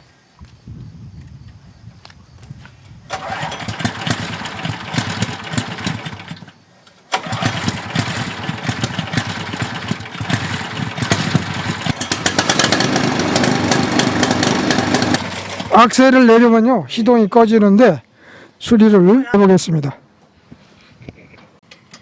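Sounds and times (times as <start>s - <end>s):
small petrol engine running: 3.1s - 16.0s.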